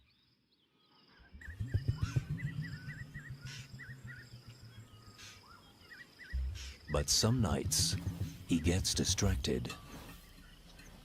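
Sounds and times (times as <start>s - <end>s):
low rumble: 1.4s - 5.7s, 6.4s - 9.8s.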